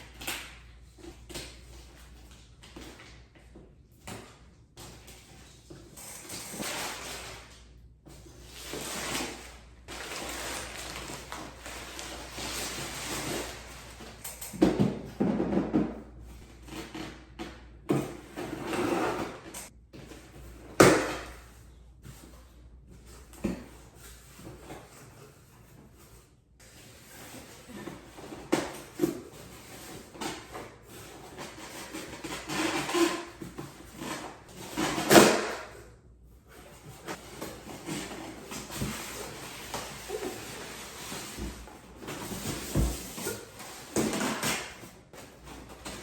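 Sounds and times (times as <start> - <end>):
cardboard box rustling and scraping: 36.5 - 46.0.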